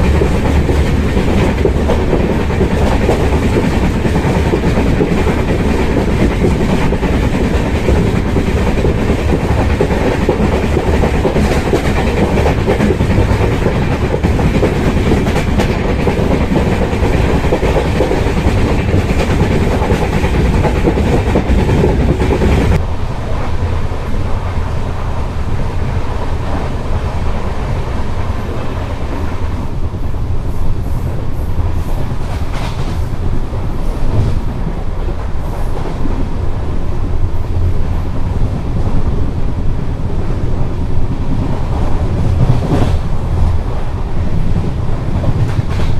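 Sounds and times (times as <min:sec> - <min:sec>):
wheels clattering over rail joints: 0:00.0 - 0:22.8
train rumble and wind: 0:00.0 - 0:45.9.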